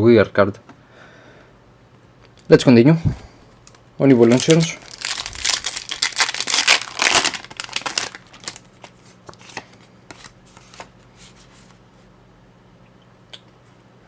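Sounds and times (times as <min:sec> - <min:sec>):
trading cards rustling: 0:03.7 - 0:11.8.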